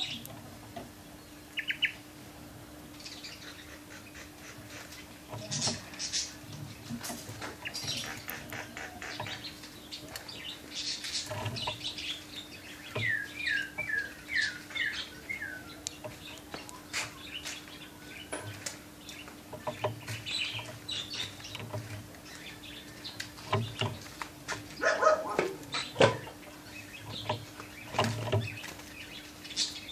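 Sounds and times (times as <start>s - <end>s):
canary chirping: 3.0s - 6.4s, 7.5s - 24.1s.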